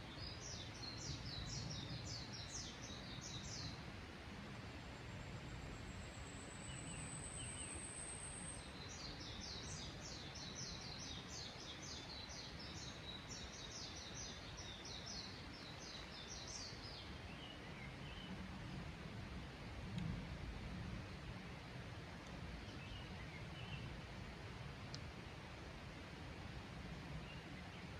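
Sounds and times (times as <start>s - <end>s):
background hiss: 0.0s - 27.9s
birds singing: 0.1s - 3.8s, 6.3s - 18.4s.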